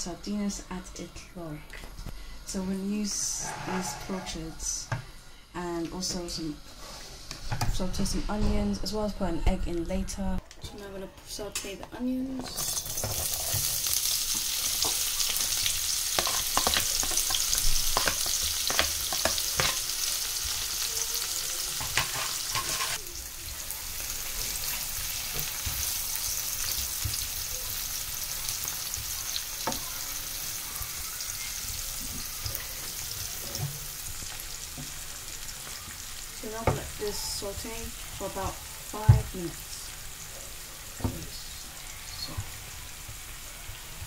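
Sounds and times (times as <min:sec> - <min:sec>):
utensil scraping a pan: 0:03.2 - 0:04.8, 0:21.8 - 0:23.0
onions sizzling in a pan: 0:12.0 - 0:44.0.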